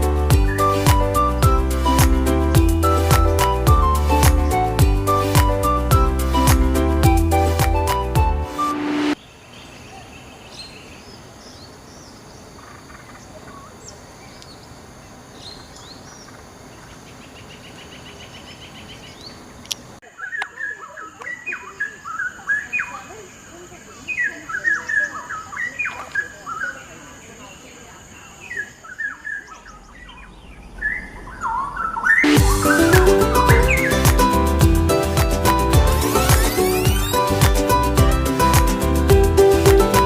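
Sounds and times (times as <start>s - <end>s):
birds chirping: 9.1s - 40.0s.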